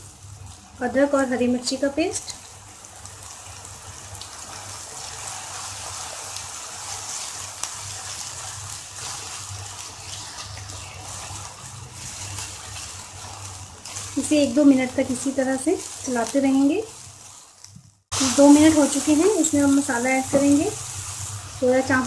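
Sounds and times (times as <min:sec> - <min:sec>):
paste sizzling in hot oil: 0:00.0 - 0:22.0
wooden spatula stirring: 0:05.9 - 0:17.8.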